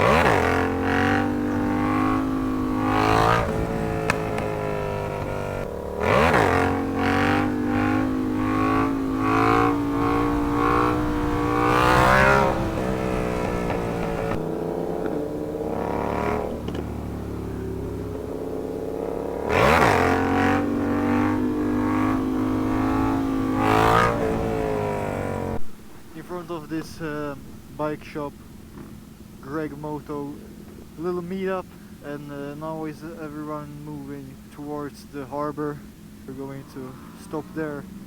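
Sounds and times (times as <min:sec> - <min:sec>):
motorcycle engines revving: 0:00.0 - 0:38.0.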